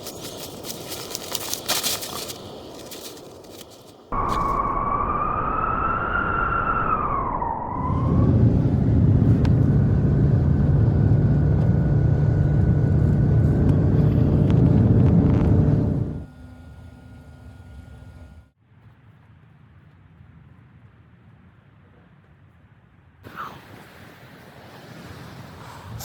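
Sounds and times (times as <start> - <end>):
long howl: 4.2 - 11.5
loud low rumble: 4.2 - 16.3.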